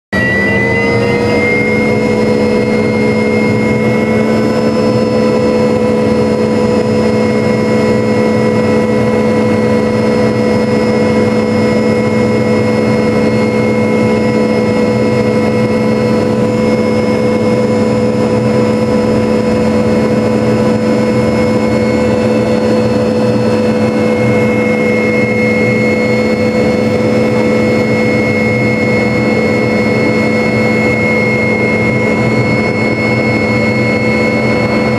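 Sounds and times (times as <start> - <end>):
helicopter turbine and rotors whine: 0.1 - 34.9.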